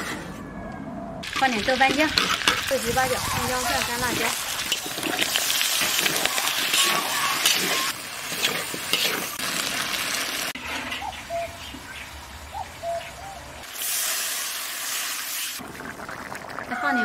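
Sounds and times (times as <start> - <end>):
food sizzling in a wok: 1.2 - 10.6, 13.6 - 15.6
bird chirps: 11.0 - 13.5.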